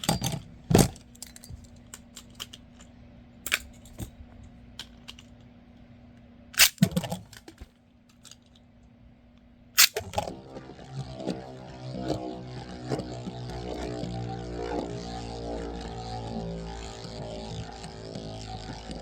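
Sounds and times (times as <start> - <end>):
music: 10.0 - 19.0.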